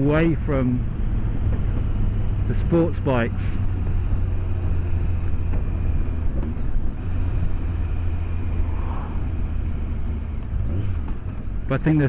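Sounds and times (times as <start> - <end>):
motorcycle engine low drone: 0.0 - 12.0
wind rush: 8.2 - 10.1.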